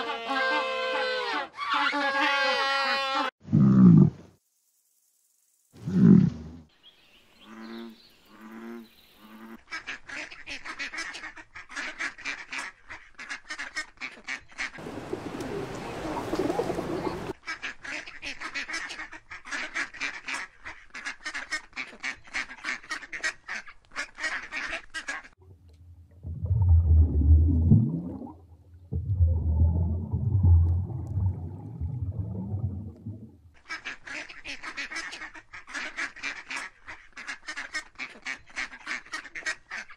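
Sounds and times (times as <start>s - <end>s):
ducks quacking: 7.5s - 25.4s, 33.6s - 39.9s
deep low rumbling: 25.4s - 33.5s.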